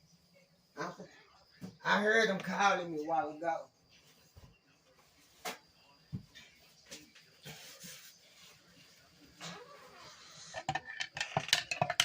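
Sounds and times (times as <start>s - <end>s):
faint rustling and shuffling: 3.8s - 10.5s
dishes and cutlery clattering: 10.1s - 12.0s.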